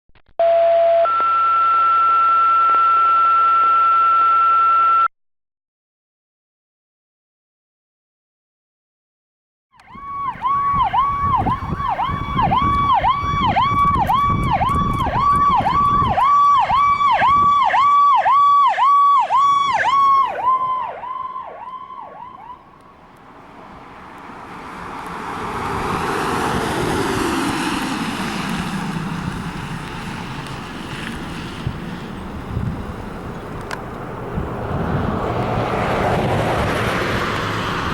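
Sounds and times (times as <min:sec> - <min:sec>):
electronic siren: 0:00.4 - 0:05.1, 0:09.8 - 0:22.9
vehicle engine rumble: 0:09.8 - 0:18.6, 0:19.2 - 0:37.9.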